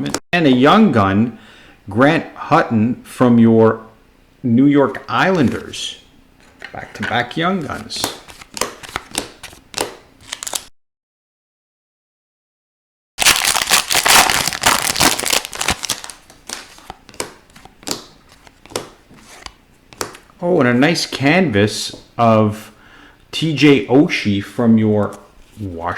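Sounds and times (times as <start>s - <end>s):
trading cards clicking and sliding: 6.4s - 10.7s, 15.6s - 20.3s
foil wrapper crinkling: 7.9s - 10.7s, 13.2s - 18.6s.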